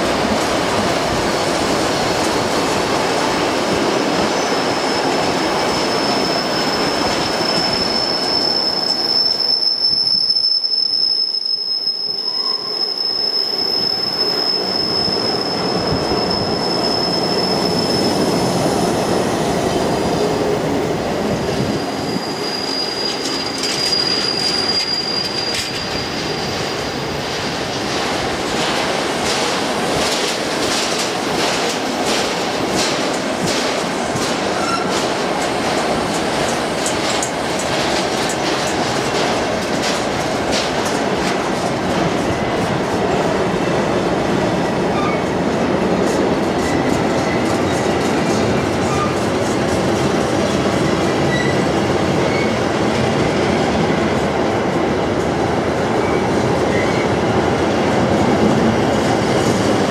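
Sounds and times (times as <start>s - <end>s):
freight wagons rumbling on rail: 12.9s - 59.9s.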